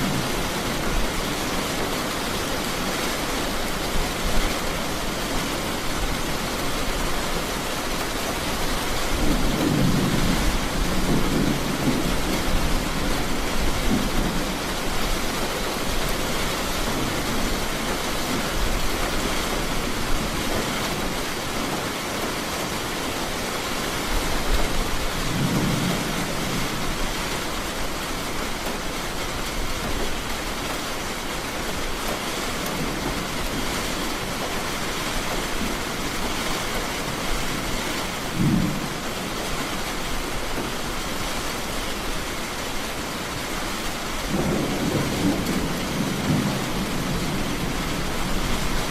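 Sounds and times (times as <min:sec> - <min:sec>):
heavy rain falling: 0:00.0 - 0:48.9
thunder rumbling: 0:08.8 - 0:15.2, 0:24.5 - 0:28.0, 0:36.8 - 0:40.7, 0:44.2 - 0:48.9.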